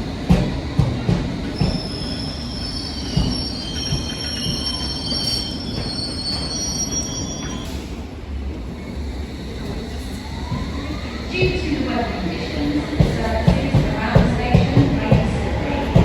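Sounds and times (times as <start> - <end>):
train rumble: 0.0 - 16.0
high wheel squeal: 1.6 - 7.8
train wheels knocking over rail joints: 12.9 - 16.0.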